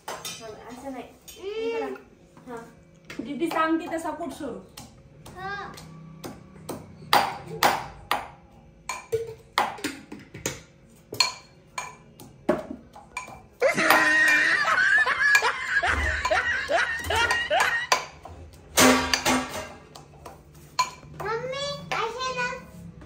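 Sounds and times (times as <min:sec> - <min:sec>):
excited voices: 0:13.6 - 0:18.0
loud laughter: 0:13.6 - 0:18.0.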